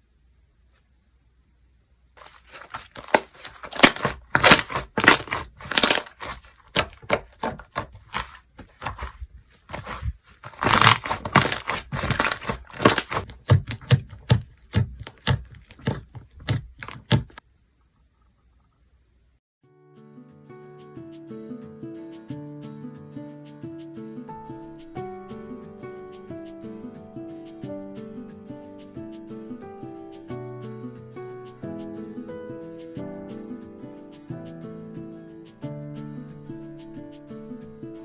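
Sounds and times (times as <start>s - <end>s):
slime squished by hand: 2.2s - 17.4s.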